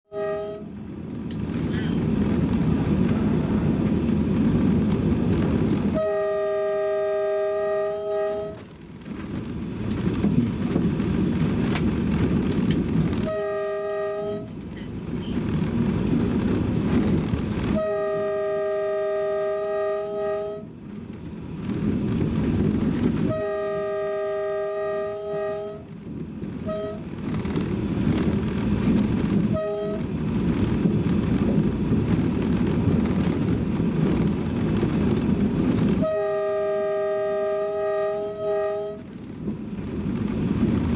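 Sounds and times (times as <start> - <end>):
train horn blasts: 0.1 - 0.8, 5.9 - 8.8, 13.2 - 14.9, 17.6 - 20.8, 23.2 - 26.0, 26.6 - 27.2, 29.5 - 30.2, 35.9 - 39.2
moving train rumble: 0.1 - 40.9.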